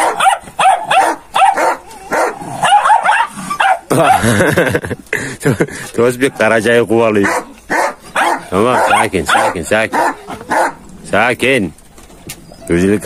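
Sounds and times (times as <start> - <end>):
dogs yipping and barking: 0.0 - 4.4, 7.2 - 10.9.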